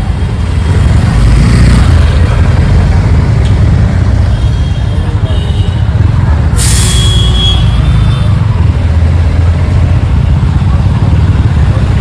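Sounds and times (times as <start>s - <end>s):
motorcycle riding in traffic: 0.0s - 12.0s.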